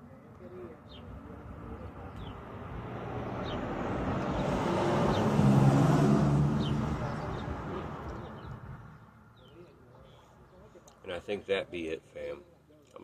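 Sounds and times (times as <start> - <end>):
vehicle passing by: 0.7 - 9.5.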